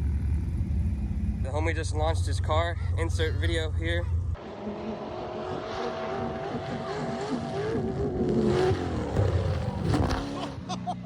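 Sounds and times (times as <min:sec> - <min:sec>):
car engine revving: 0:03.1 - 0:10.8.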